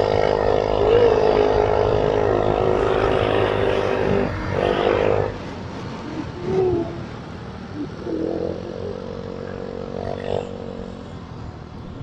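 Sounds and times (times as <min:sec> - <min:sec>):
motorcycle engine running: 0:00.0 - 0:05.4.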